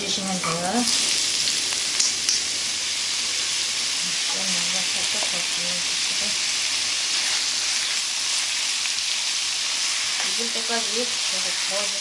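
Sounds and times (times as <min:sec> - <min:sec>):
potato strips sizzling in hot oil: 0:00.0 - 0:12.0.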